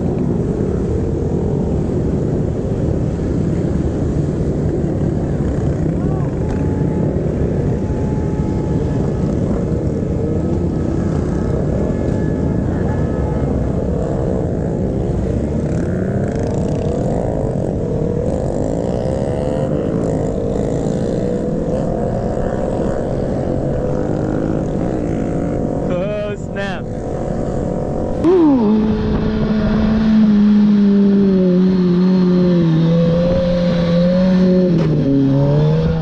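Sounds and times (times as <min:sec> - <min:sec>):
motorcycle engine revving: 0:00.7 - 0:26.0, 0:26.8 - 0:36.0.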